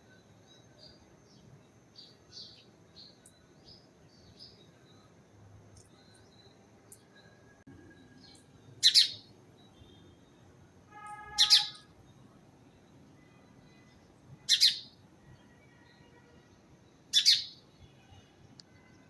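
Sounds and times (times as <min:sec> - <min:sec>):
faint bird chirps: 0:00.0 - 0:19.0
bird double-note calls: 0:10.9 - 0:11.8.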